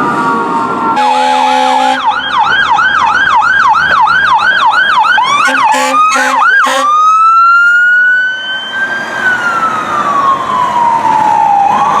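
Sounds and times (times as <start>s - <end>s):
fire engine siren: 0.0s - 12.0s
short low horn blasts: 1.0s - 2.0s, 5.4s - 6.9s.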